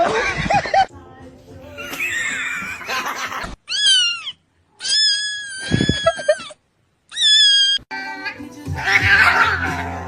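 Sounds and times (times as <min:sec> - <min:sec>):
cat meowing: 0:03.7 - 0:06.5, 0:07.1 - 0:07.8.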